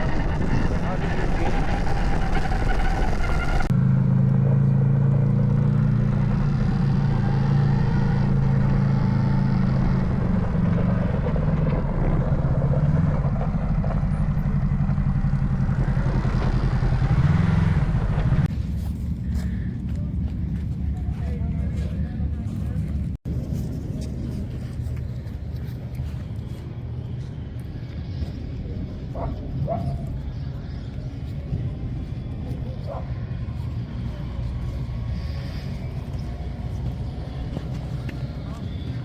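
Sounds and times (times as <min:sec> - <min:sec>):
wind noise: 0:00.0 - 0:03.8
off-road vehicle engine running: 0:00.0 - 0:39.0.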